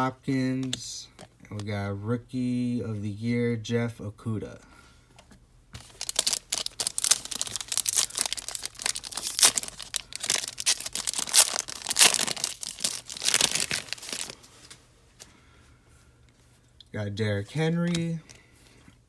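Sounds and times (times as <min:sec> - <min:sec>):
plastic wrapper tearing and crinkling: 0:05.8 - 0:14.8.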